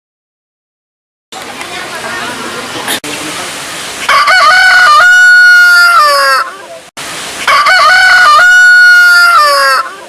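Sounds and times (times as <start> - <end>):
rooster crowing: 4.1 - 6.6, 7.4 - 10.0.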